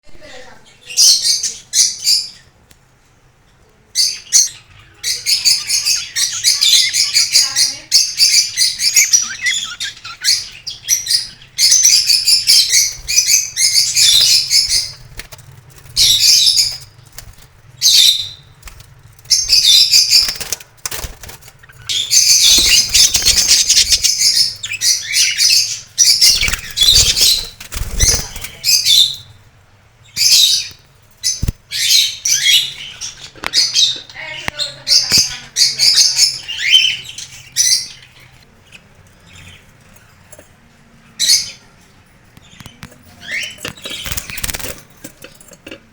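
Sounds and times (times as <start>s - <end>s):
budgerigars chattering and warbling: 4.0s - 29.3s, 30.1s - 40.0s.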